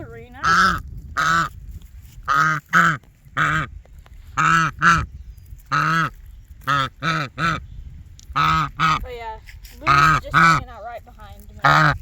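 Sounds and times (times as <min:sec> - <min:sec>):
goose honking: 0:00.3 - 0:01.6, 0:02.2 - 0:03.7, 0:04.3 - 0:05.1, 0:05.7 - 0:07.7, 0:08.3 - 0:10.9, 0:11.5 - 0:12.0.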